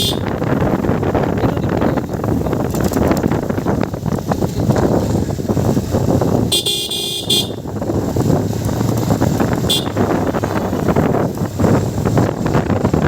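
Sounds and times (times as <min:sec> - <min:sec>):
high-pitched horn honking: 0:00.0 - 0:00.4, 0:06.5 - 0:07.7, 0:09.6 - 0:10.4
motorcycle engine running: 0:00.0 - 0:13.0
wind buffeting microphone: 0:00.0 - 0:13.0.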